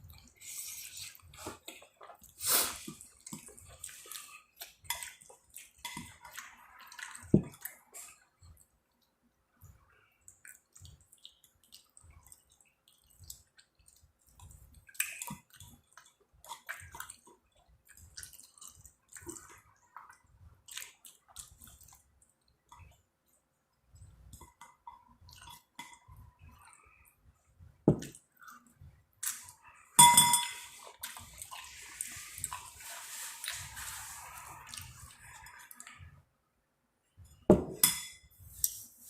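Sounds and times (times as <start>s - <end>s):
wet chewing: 0.0s - 23.4s.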